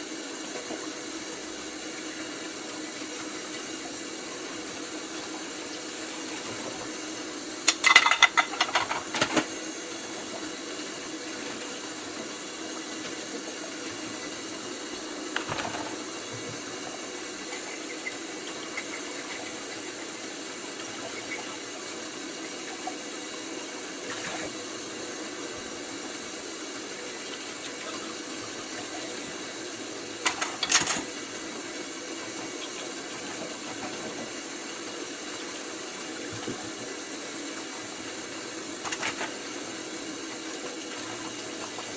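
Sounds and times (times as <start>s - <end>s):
dishes clattering: 7.7s - 9.5s, 30.2s - 31.2s.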